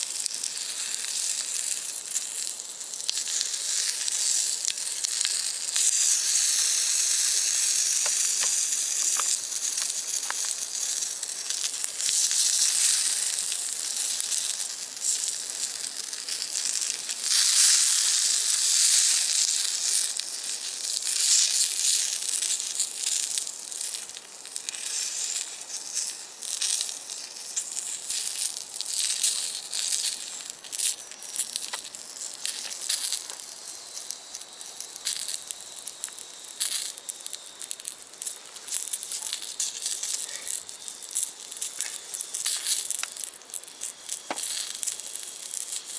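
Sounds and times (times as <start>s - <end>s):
food sizzling in a skillet: 0.0s - 45.9s.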